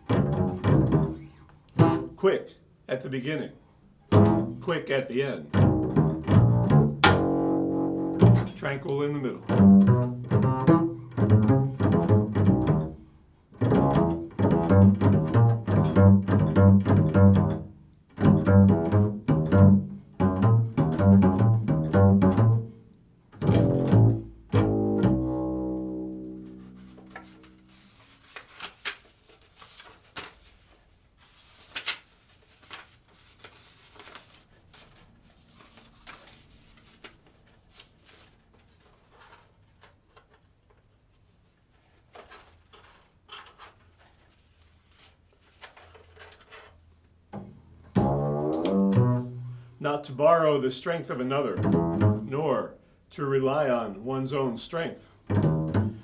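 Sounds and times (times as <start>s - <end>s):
plucked bass guitar runs: 0.1s - 1.2s, 1.8s - 2.2s, 4.1s - 4.7s, 5.5s - 8.7s, 9.5s - 13.0s, 13.6s - 22.8s, 23.4s - 27.7s, 47.4s - 50.0s, 51.4s - 52.5s, 55.3s - 56.0s.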